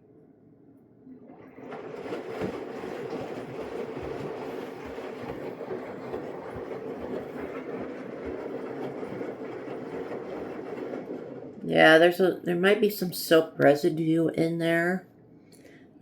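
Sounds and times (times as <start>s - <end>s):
washing machine drum tumbling: 1.2s - 12.6s
rushing water: 1.3s - 11.2s.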